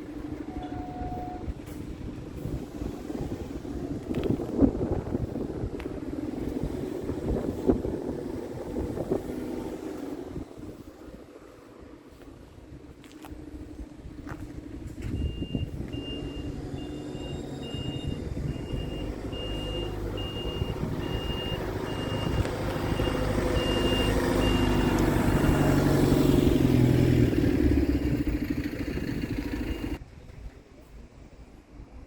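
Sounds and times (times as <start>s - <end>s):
diesel truck engine running: 0.0s - 30.0s
reversing alarm beeping: 0.4s - 1.6s, 15.1s - 25.9s.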